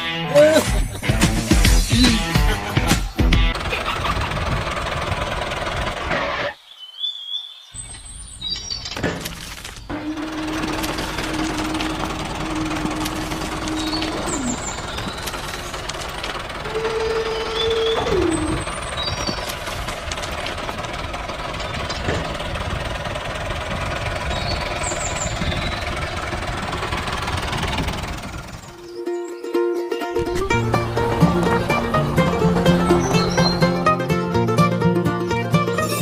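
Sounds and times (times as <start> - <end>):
engine running with rattling knock: 3.2 - 6.5, 8.8 - 29.0, 30.2 - 34.6
tone sliding down in pitch: 16.6 - 18.6.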